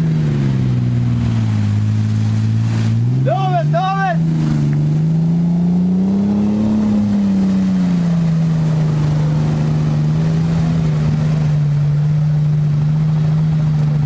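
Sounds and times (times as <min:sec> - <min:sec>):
vehicle engine droning: 0:00.0 - 0:14.0.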